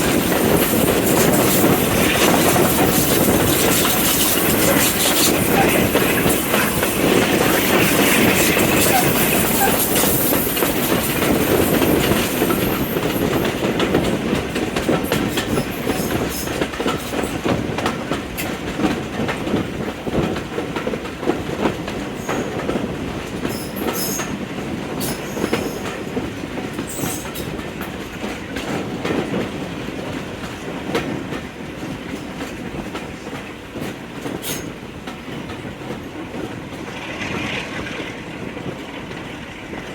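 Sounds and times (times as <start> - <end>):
train wheels clacking over rail joints: 0.0 - 39.9
high wheel squeals: 0.4 - 13.4.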